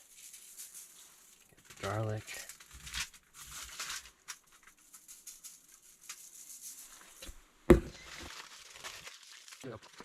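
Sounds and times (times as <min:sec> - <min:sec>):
rustling and crinkling of wrapping: 0:00.0 - 0:10.0
sharp knock: 0:07.7 - 0:08.0.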